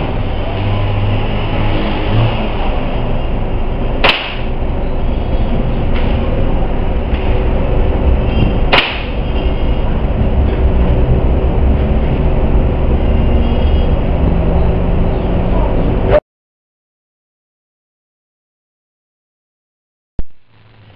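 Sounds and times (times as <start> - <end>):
air rifle shot: 4.0 - 4.5
wind buffeting microphone: 5.4 - 16.1.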